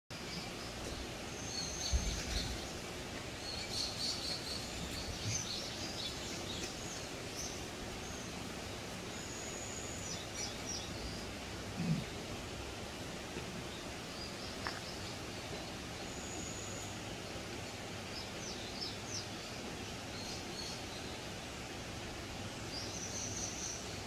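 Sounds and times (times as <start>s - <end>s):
small birds chirping: 0.1s - 24.0s
steady background hiss: 0.1s - 24.0s.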